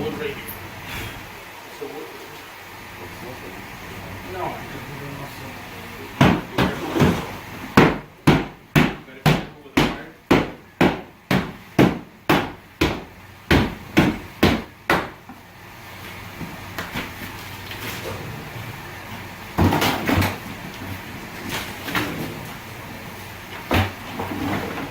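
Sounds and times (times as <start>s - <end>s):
hammer striking wood: 6.2s - 7.2s, 7.8s - 15.3s.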